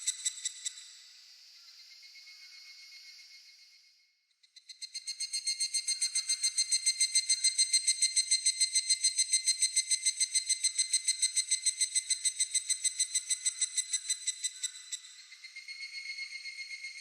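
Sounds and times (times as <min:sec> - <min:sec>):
cicada calling in ringing pulses: 0:04.6 - 0:17.0.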